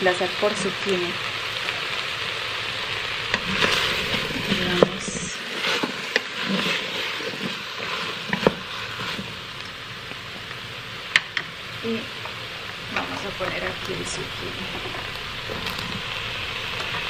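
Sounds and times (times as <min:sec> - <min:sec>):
chicken and vegetables sizzling: 0:00.0 - 0:17.0
wooden spoon stirring: 0:03.3 - 0:11.2.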